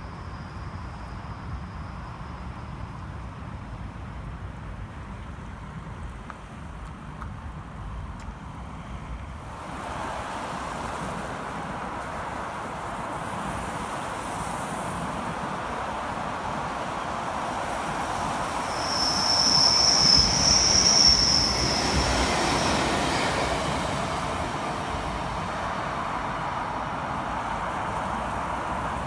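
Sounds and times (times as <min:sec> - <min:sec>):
electric train passing: 0:00.0 - 0:06.6, 0:07.8 - 0:29.0
high-pitched wheel squeal: 0:18.5 - 0:23.6.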